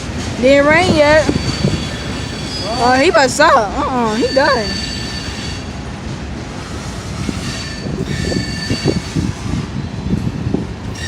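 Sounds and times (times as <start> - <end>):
freight train cars rolling: 0.0 - 11.0
high brake squeals: 1.2 - 3.3, 4.0 - 5.8, 7.4 - 9.3.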